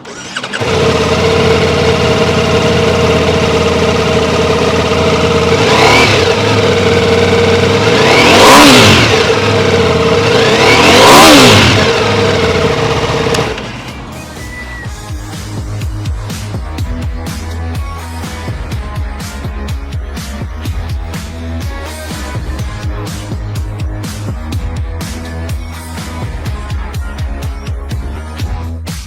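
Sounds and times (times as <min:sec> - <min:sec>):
engine revving: 0:00.0 - 0:26.7
motorcycle engine starting and idling: 0:00.0 - 0:27.6.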